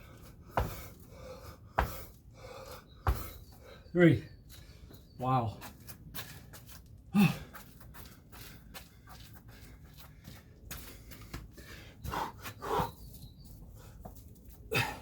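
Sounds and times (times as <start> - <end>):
man gasping and breathing hard: 0.0 - 3.4, 7.1 - 7.7, 14.7 - 15.0.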